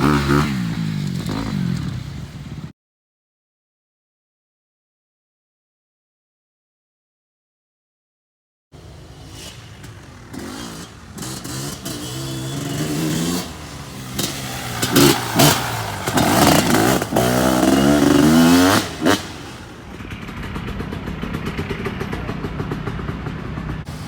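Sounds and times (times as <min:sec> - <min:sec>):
motorcycle engine revving: 0:00.0 - 0:02.7, 0:08.8 - 0:24.0.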